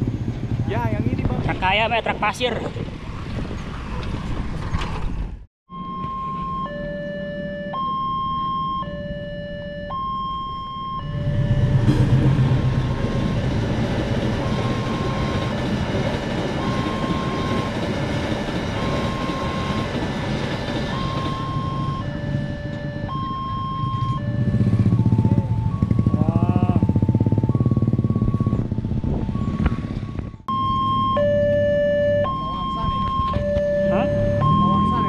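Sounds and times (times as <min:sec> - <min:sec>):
rising whine: 0:05.7 - 0:35.0
two-tone crossing alarm: 0:05.7 - 0:35.0
train wheels rumbling: 0:11.0 - 0:26.2.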